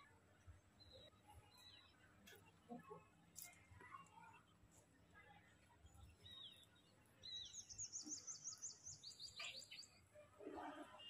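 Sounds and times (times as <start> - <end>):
faint bird chirping: 0.5 - 2.1, 5.8 - 10.3.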